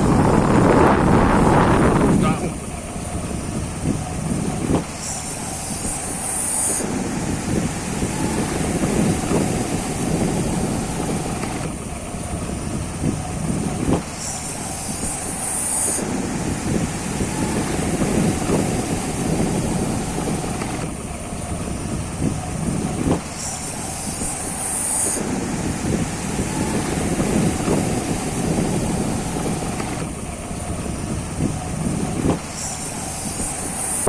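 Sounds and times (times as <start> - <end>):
high hiss: 0.0 - 34.0
motorbike ride rumble: 0.0 - 34.0
wind buffeting microphone: 0.0 - 34.0.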